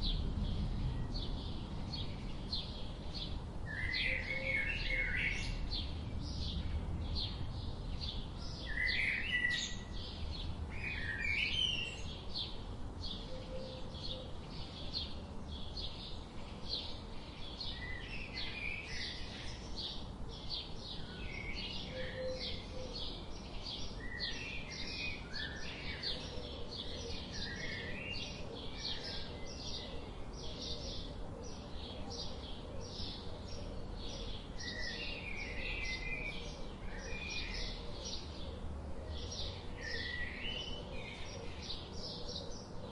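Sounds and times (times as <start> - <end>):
faint low rumble: 0.0 - 4.3
small songbirds chirping: 0.0 - 42.9.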